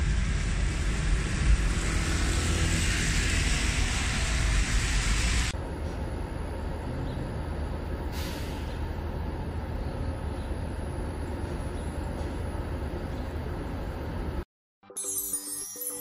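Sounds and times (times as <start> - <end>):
tyres hissing on wet road: 0.0 - 5.6, 8.0 - 9.0
vehicle engine rumble: 0.0 - 14.4.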